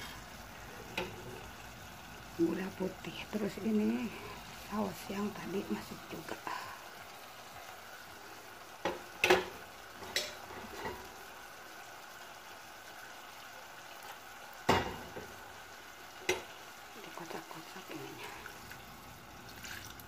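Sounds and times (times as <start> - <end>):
vegetables sizzling in pot: 0.0 - 20.0
utensils knocking against pot: 10.1 - 11.0.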